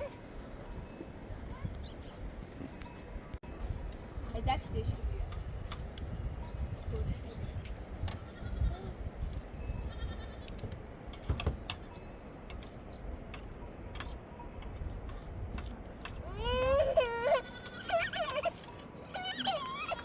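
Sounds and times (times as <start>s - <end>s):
faint livestock bleating: 8.2s - 9.0s, 9.8s - 10.6s.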